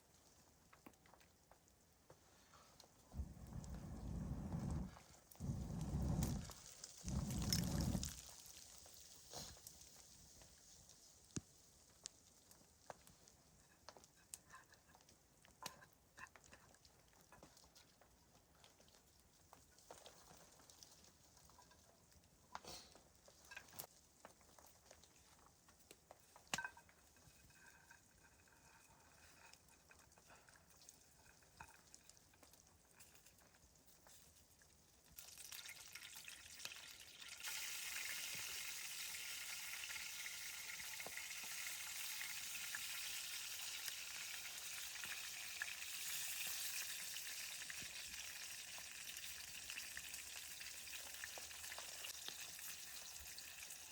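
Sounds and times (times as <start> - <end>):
sizzling hiss: 2.4 - 11.8, 35.5 - 53.9.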